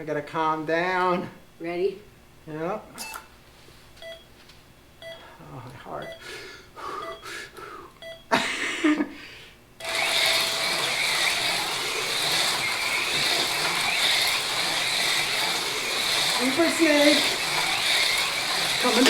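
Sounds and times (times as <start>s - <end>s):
countdown beeps: 4.0s - 4.3s, 5.0s - 8.3s
long start tone: 9.8s - 19.0s
slot cars whining on track: 9.8s - 19.0s.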